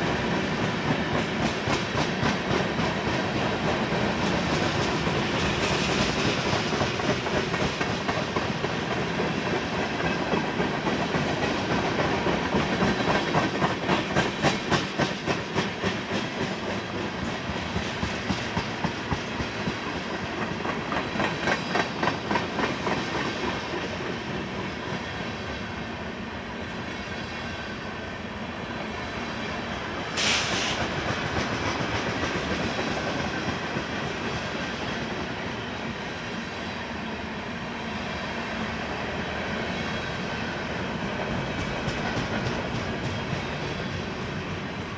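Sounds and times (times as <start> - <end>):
freight train rolling rumble: 0.0 - 44.9
steel wheels clicking over rail joints: 0.6 - 24.1.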